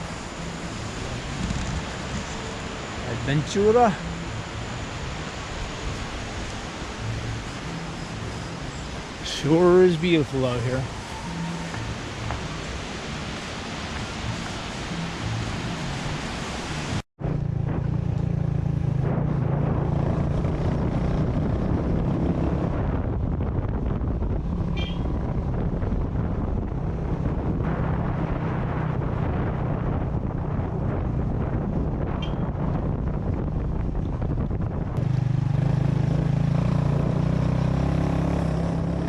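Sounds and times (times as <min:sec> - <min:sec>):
wind buffeting microphone: 0:00.0 - 0:03.9, 0:16.8 - 0:39.0
steady rushing noise: 0:00.0 - 0:39.0
motorcycle engine running: 0:34.6 - 0:39.0.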